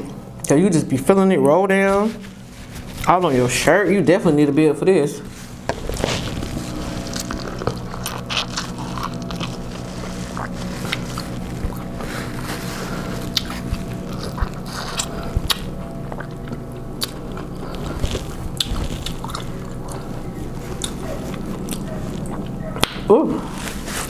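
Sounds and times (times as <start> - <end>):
low hum: 0.0 - 24.0
chewing corn crunches: 5.3 - 24.0.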